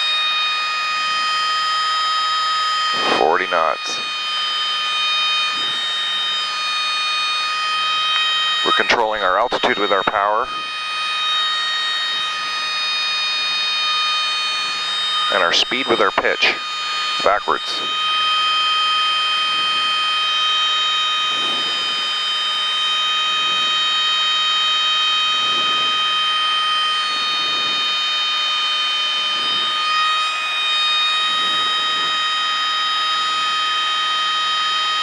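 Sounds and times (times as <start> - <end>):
aircraft engine running: 0.0 - 35.0.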